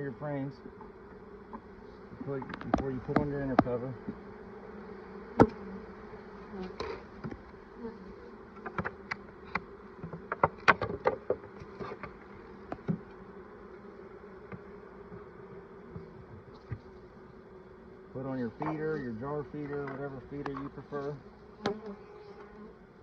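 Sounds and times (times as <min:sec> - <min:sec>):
bees buzzing: 0:00.0 - 0:23.0
hive frames knocking: 0:00.7 - 0:04.3, 0:05.3 - 0:05.7, 0:08.5 - 0:13.2, 0:14.4 - 0:16.9, 0:21.6 - 0:22.0.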